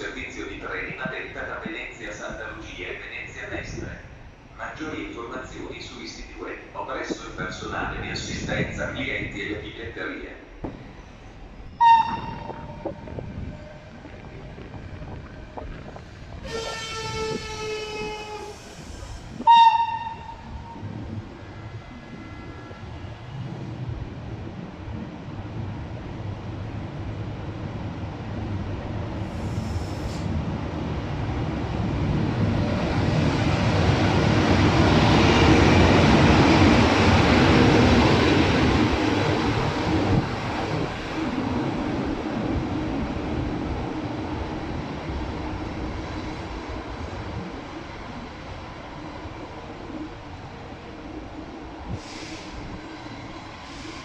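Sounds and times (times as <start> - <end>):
low rumble of rail noise: 0.0 - 54.0
train horn blasts: 11.8 - 12.8, 16.4 - 18.6, 19.4 - 20.7.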